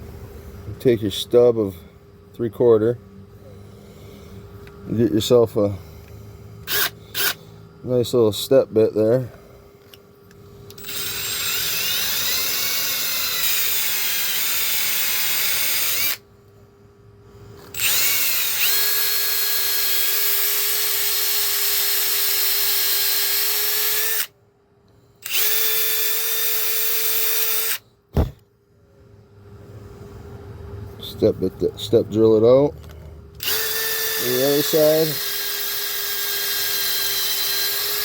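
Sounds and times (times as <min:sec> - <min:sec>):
power drill boring plastic pipe: 0:06.6 - 0:07.4, 0:10.7 - 0:16.2, 0:17.7 - 0:24.3, 0:25.2 - 0:27.8, 0:33.4 - 0:38.0.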